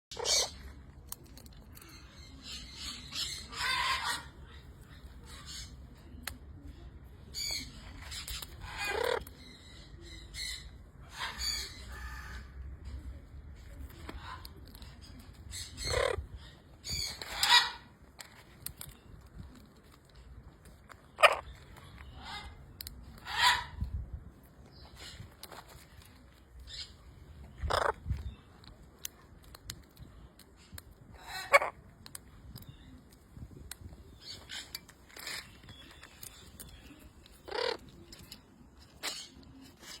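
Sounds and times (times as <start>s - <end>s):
macaw squawking: 27.6s - 28.0s.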